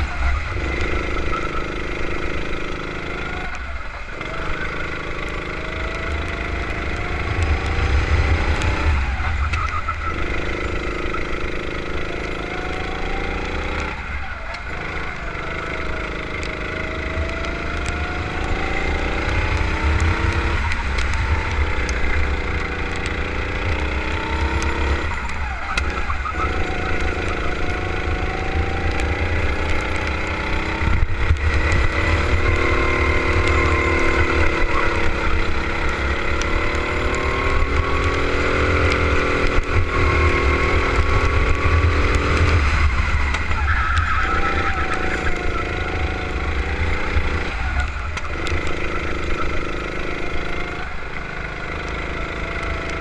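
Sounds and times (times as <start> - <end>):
kart engine revving: 0.0 - 53.0.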